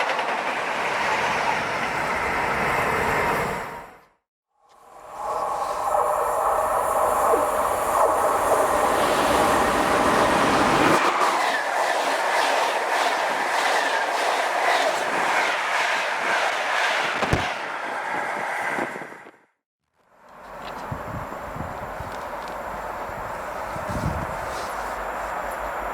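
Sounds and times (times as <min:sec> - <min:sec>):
train wheels clattering over rails: 0:00.0 - 0:02.5
train whine: 0:04.7 - 0:19.4, 0:20.2 - 0:25.9.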